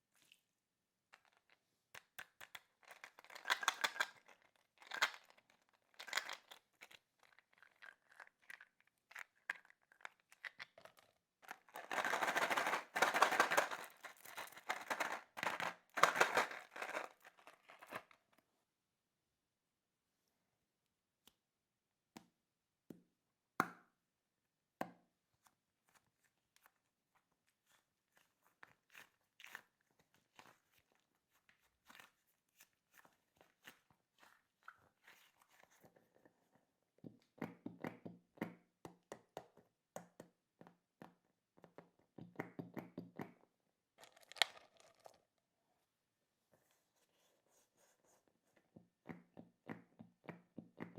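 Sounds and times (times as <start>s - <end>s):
plastic toys clicking and tapping: 2.0s - 6.5s, 11.5s - 18.1s
crunching of toy candies: 2.6s - 18.2s.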